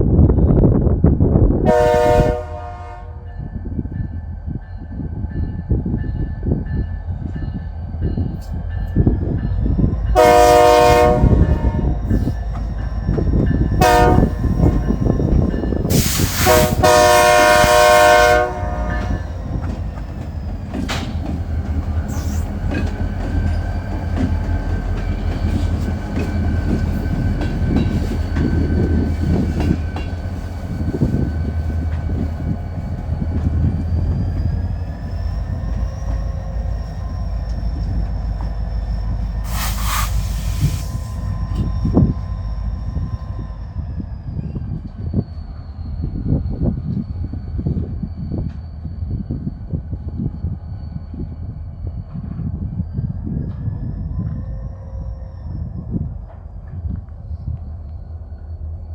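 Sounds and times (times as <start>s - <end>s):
locomotive air horn: 1.7s - 3.2s, 10.2s - 12.0s, 13.8s - 14.7s, 15.9s - 19.2s
wheels clattering on rail joints: 18.6s - 43.3s.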